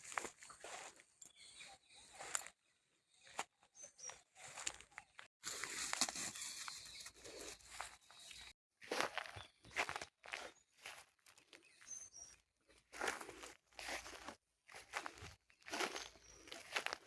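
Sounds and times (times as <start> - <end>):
grass rustling and crunching: 0.0 - 1.0, 4.0 - 8.2, 12.9 - 17.0
bird chirp: 0.5 - 5.3, 6.3 - 13.2, 14.9 - 17.0.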